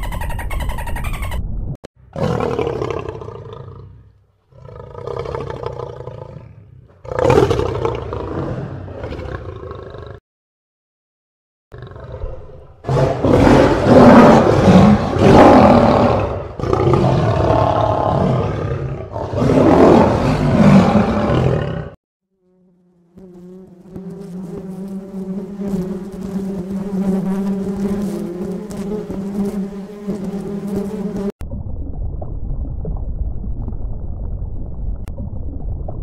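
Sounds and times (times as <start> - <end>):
lion roaring: 2.1 - 10.2, 11.8 - 22.0
bumblebee buzzing: 22.4 - 31.4.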